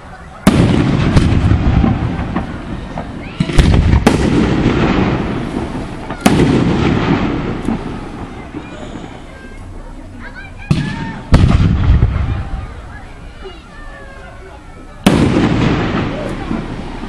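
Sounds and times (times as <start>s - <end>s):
fireworks bursting: 0.0s - 17.0s
rumbling echo and crackle: 0.5s - 9.8s, 10.6s - 13.1s.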